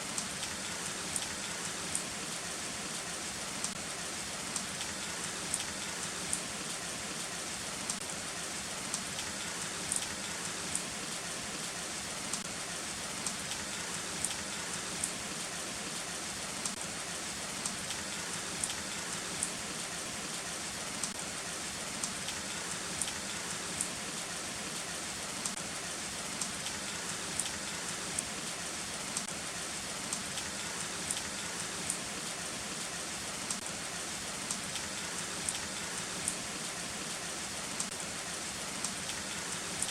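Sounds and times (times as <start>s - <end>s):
raindrops tapping a surface: 0.1s - 3.8s, 4.5s - 6.8s, 7.8s - 8.1s, 8.8s - 12.6s, 13.2s - 16.8s, 17.6s - 21.2s, 21.9s - 25.6s, 26.3s - 32.5s, 33.4s - 39.9s
heavy rain falling: 0.1s - 39.9s.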